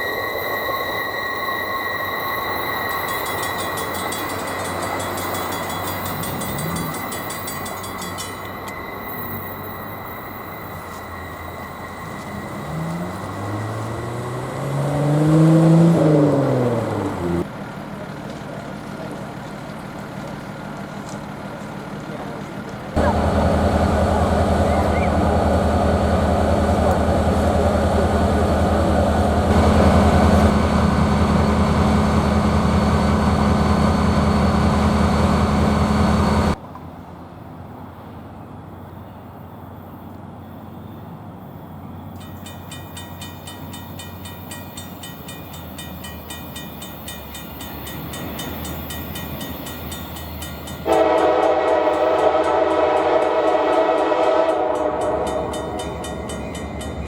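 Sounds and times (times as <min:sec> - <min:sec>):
diesel locomotive engine running: 0:00.0 - 0:57.0
locomotive air horn chord: 0:23.0 - 0:28.0, 0:50.6 - 0:56.4.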